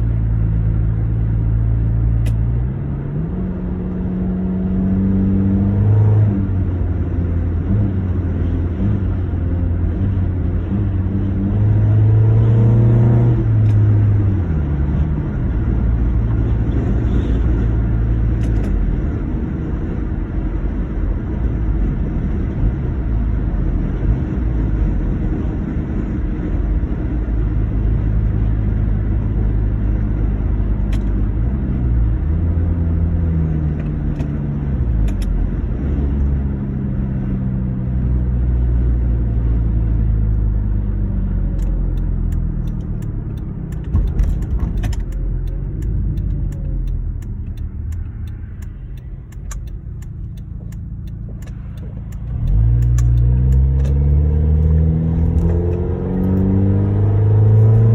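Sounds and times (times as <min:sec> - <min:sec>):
car engine droning: 0:00.0 - 0:57.9.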